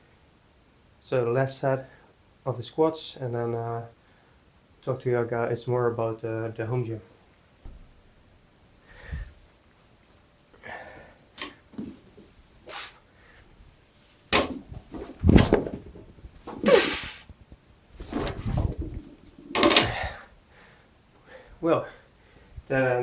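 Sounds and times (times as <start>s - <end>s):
strained exhale: 8.8s - 9.4s, 10.6s - 11.2s, 12.7s - 13.5s, 16.6s - 17.3s, 19.8s - 21.6s
hard breathing: 8.8s - 9.5s, 10.6s - 11.2s, 19.8s - 22.6s
barbell clanking: 14.3s - 16.7s, 19.4s - 20.1s
barbell thudding: 14.3s - 17.2s.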